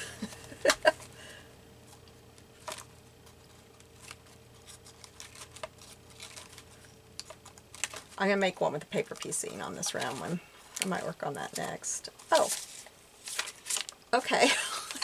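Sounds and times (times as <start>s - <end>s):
faint paper rustling: 0.0s - 14.0s
steady low hum: 0.0s - 15.0s
paper cards tapping and clicking: 1.9s - 8.2s.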